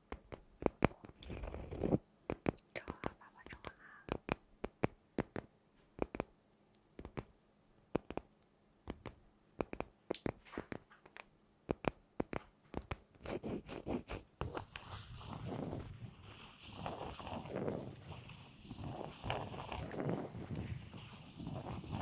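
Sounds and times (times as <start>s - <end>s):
taps and clicks on hard object: 4.1s - 6.3s, 7.0s - 7.3s, 7.9s - 8.3s, 8.9s - 13.0s
scratching: 11.8s - 22.0s.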